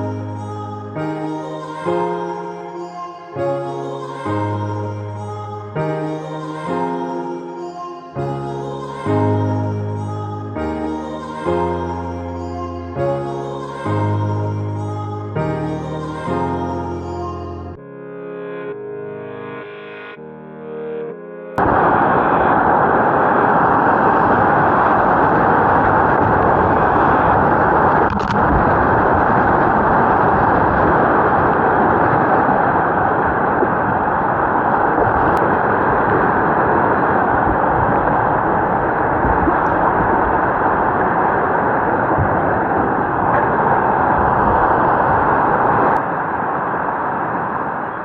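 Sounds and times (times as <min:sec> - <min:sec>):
river water rushing over rapids: 0:21.6 - 0:48.0.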